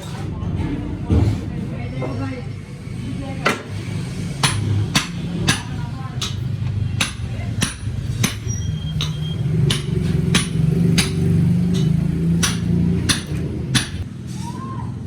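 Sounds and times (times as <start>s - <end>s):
hammer blows on metal: 4.4s - 14.1s.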